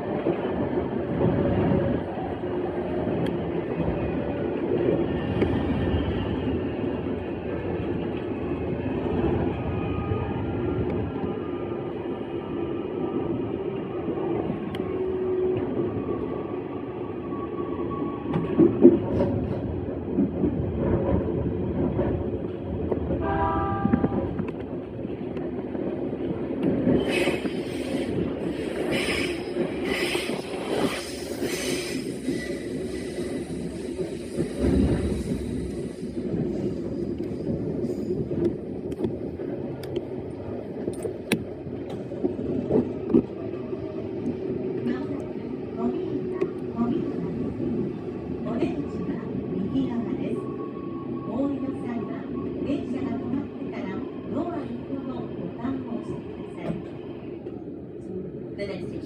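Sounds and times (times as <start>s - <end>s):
train wheels rumbling on rails: 0.0s - 59.0s
train horn blast: 23.2s - 24.3s.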